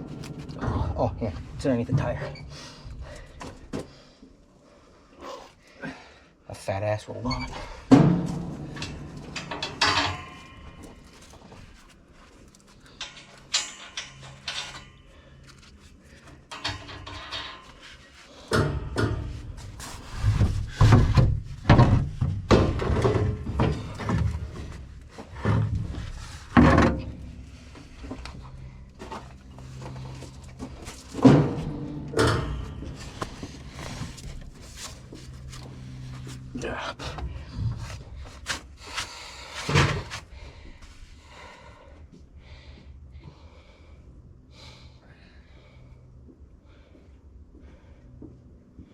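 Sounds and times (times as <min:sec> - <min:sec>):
knocks and clunks: 0:00.0 - 0:04.1, 0:07.3 - 0:11.8, 0:16.4 - 0:38.5.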